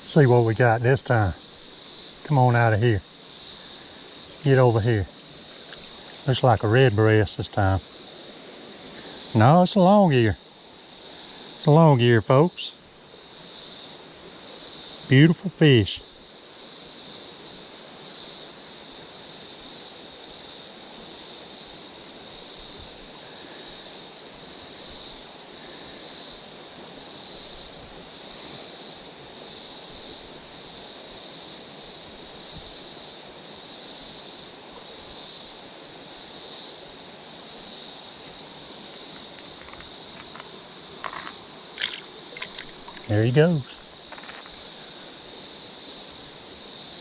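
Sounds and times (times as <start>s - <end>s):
creek water flowing: 0.0s - 10.3s, 38.4s - 46.6s
insect chorus: 0.0s - 47.0s.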